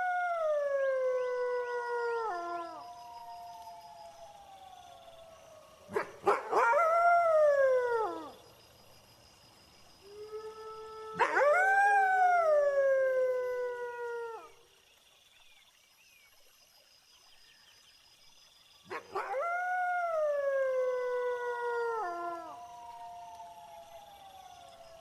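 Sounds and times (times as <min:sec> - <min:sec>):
wolves howling: 0:00.0 - 0:08.4, 0:10.1 - 0:14.5, 0:18.9 - 0:25.0
crickets chirping: 0:00.0 - 0:25.0.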